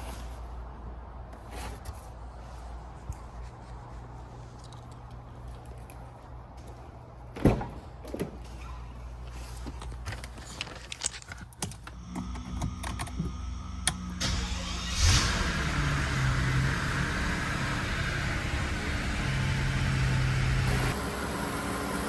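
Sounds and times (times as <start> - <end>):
car engine cranking: 12.2 - 21.0.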